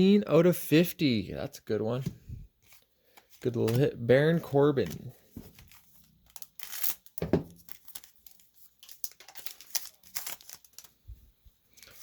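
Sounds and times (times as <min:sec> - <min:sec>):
cards rustling and crinkling: 0:01.9 - 0:12.0.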